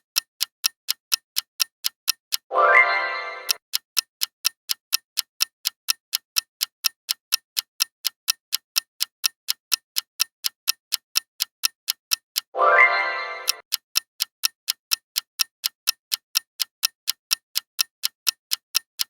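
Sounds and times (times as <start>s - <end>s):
clock-like ticking: 0.0s - 19.0s
upward sweeping musical effect: 12.6s - 13.6s.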